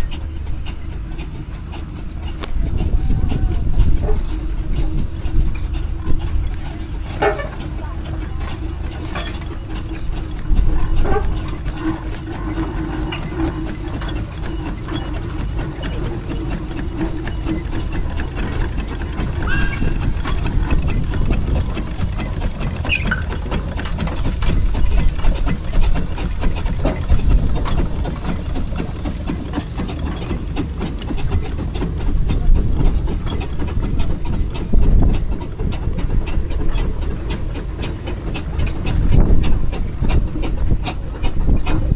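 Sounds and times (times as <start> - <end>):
steam engines rumbling: 0.0 - 41.9
metal clanks and knocks: 5.4 - 34.8
steam hiss: 9.5 - 35.8.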